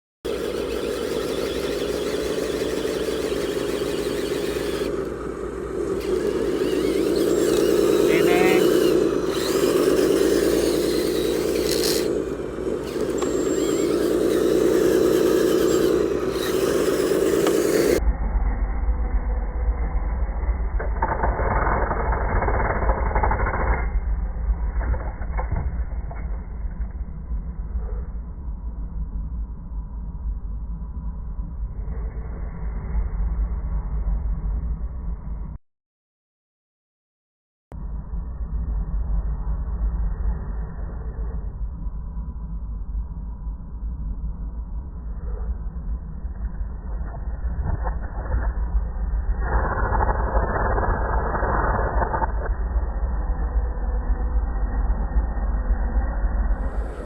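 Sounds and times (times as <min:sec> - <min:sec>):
toy truck motor running: 0:00.3 - 0:18.0, 0:20.6 - 0:24.0, 0:47.8 - 0:57.0
steady low rumble: 0:00.3 - 0:35.6, 0:37.7 - 0:57.0.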